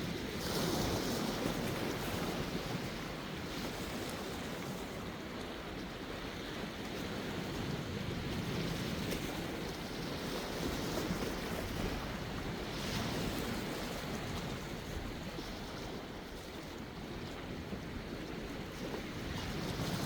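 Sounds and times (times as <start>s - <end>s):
sea waves washing ashore: 0.0s - 20.0s
wind on microphone: 7.0s - 20.0s.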